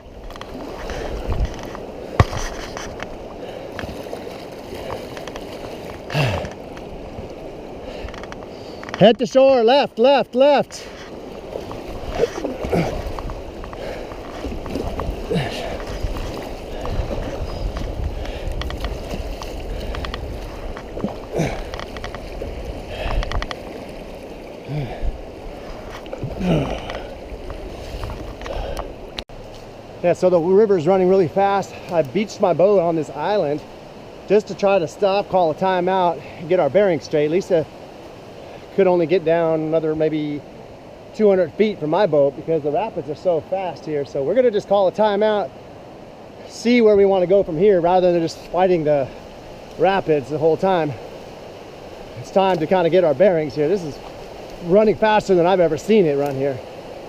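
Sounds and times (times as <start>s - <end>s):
wind buffeting microphone: 0.0s - 8.9s, 10.8s - 29.3s
paddle splashes: 0.0s - 41.1s, 41.8s - 57.0s
river water rushing: 0.0s - 57.0s.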